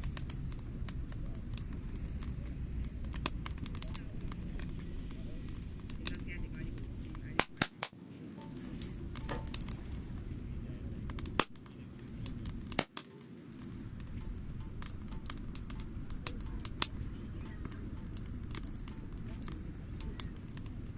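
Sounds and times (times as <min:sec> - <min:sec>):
loud fire pops: 0:00.0 - 0:20.9
low rushing of fire: 0:00.0 - 0:20.9
wood fire crackling: 0:00.0 - 0:20.9.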